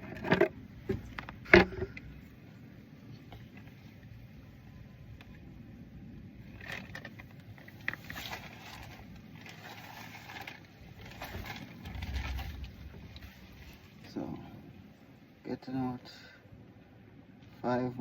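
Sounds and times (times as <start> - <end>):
clicks and scraping on a car: 0.0 - 2.3, 6.5 - 14.2
brief low rumble: 11.8 - 14.0.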